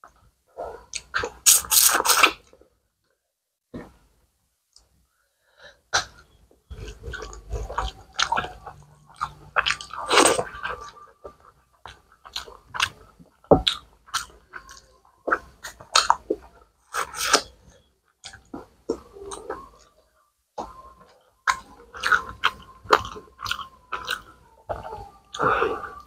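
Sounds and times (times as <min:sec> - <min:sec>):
wet chewing and lip-smacking: 0:06.0 - 0:17.6, 0:20.6 - 0:25.8.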